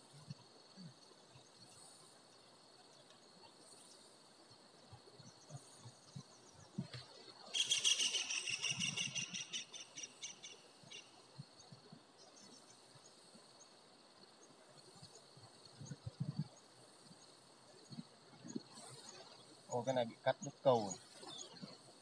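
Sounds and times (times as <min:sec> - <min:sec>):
faint bird chirps: 0:00.1 - 0:22.0
bird calling repeated high notes: 0:07.5 - 0:11.1.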